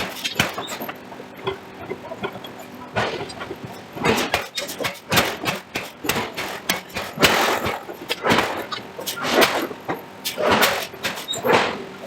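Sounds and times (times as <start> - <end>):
forging hammer blows: 3.0 - 11.8.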